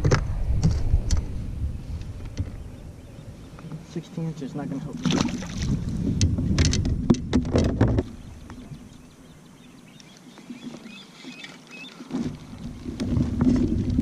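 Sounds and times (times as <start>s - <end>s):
low wind rumble: 0.0s - 11.0s, 12.2s - 14.0s
knocks and rustles from handling: 6.6s - 8.2s.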